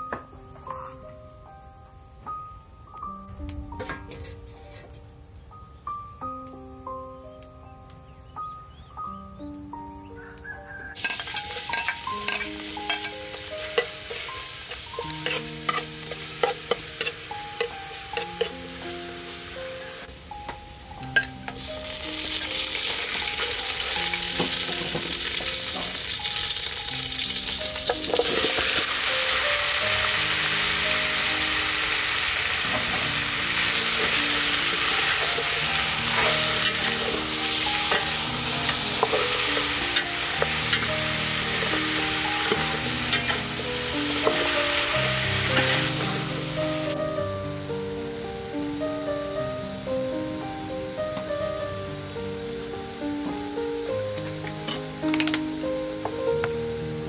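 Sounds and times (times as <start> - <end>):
soft background melody: 0.0 - 57.0
metal ladle stirring: 11.0 - 18.6, 38.7 - 39.8
food frying in hot oil: 11.0 - 20.0, 21.2 - 47.0.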